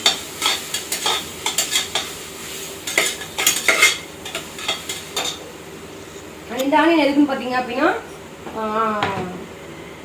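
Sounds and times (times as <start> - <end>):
oil sizzling: 0.0 - 7.5.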